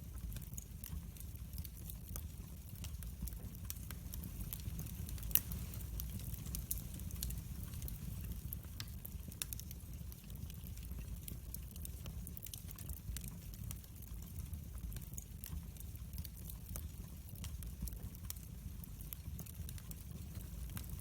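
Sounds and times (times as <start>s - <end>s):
fire crackling and popping: 0.0s - 21.0s
flames rumbling: 0.0s - 21.0s.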